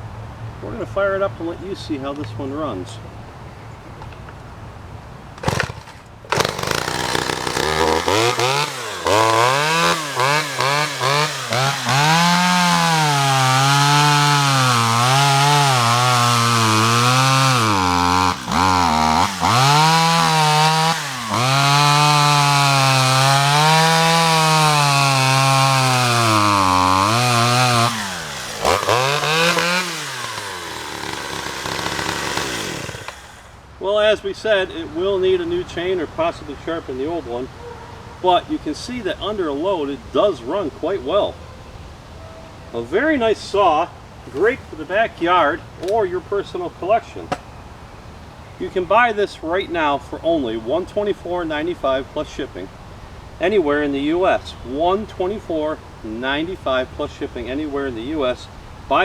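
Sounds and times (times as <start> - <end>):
chainsaw running and cutting wood: 5.4 - 33.6.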